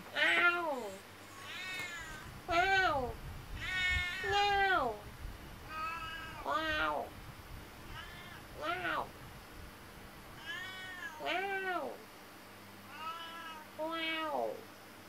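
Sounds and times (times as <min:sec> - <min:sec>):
cat meowing: 0:00.2 - 0:03.0, 0:03.6 - 0:04.8, 0:05.7 - 0:07.1, 0:07.8 - 0:09.1, 0:10.4 - 0:11.8, 0:12.9 - 0:14.6.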